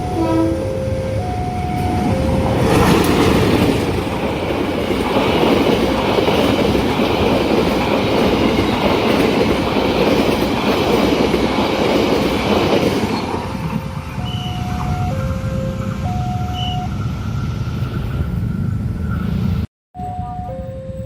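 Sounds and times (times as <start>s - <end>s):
train wheels clattering: 2.6s - 15.2s.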